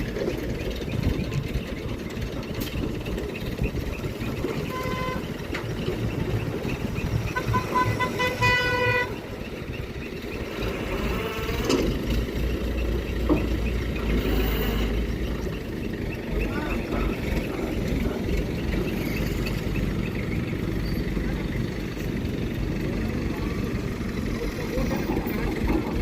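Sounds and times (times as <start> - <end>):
engine running: 0.0 - 26.0
vehicle horn honking: 4.5 - 5.5, 7.3 - 9.3.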